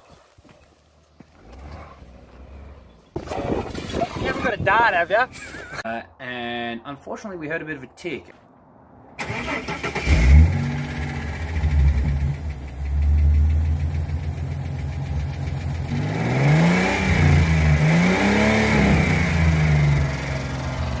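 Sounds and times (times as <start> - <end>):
car engine revving: 9.2 - 21.0
car engine idling with ticking: 11.0 - 16.2.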